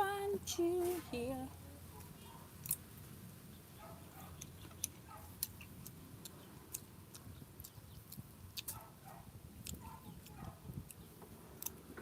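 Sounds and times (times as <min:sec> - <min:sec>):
fingers peeling fruit rind: 0:04.3 - 0:08.9, 0:09.5 - 0:11.9
mouth eating sounds: 0:09.6 - 0:11.8.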